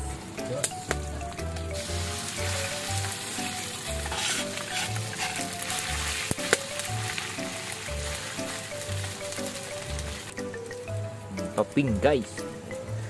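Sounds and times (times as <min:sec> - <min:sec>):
paste sizzling in a wok: 0:01.7 - 0:10.3.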